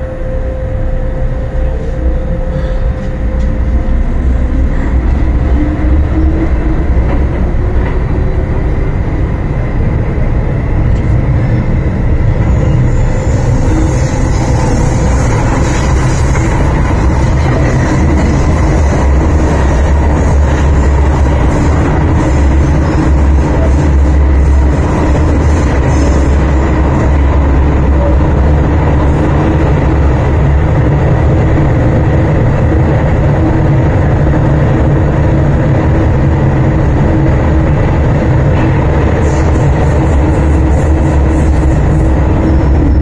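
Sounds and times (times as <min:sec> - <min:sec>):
train motor whine: 0:00.0 - 0:43.0
wheels rumbling on rail: 0:00.0 - 0:43.0.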